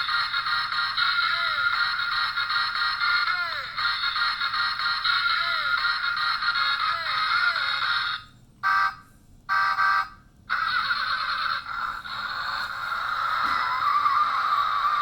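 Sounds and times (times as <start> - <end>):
tinny song from toy speaker: 0.0 - 8.9, 9.5 - 15.0.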